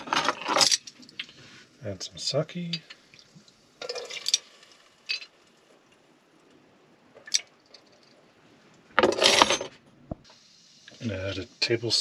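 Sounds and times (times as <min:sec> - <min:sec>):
bottles and utensils clinking: 0:03.8 - 0:04.5, 0:05.1 - 0:05.3
utensils clattering: 0:09.0 - 0:09.7.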